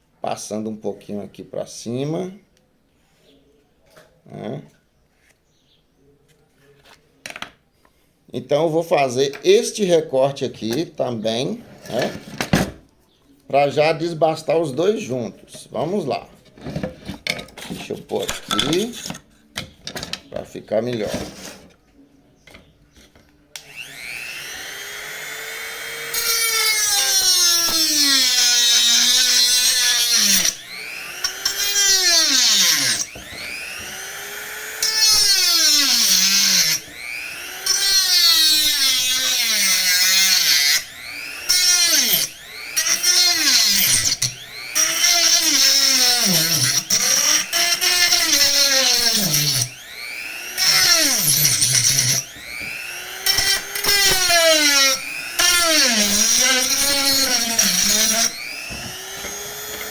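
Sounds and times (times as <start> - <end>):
rotary tool cutting plastic pipe: 23.6 - 59.9.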